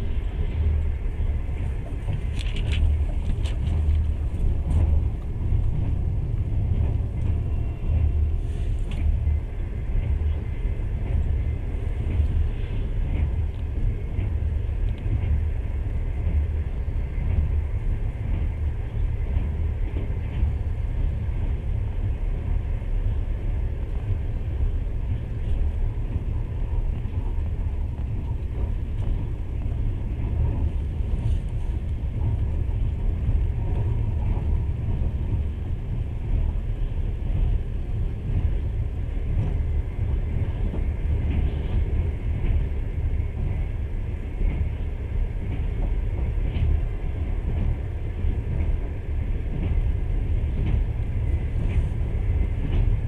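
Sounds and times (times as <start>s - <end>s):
train wheels rumbling on rails: 0.0s - 53.0s
faint ticks: 13.1s - 15.4s.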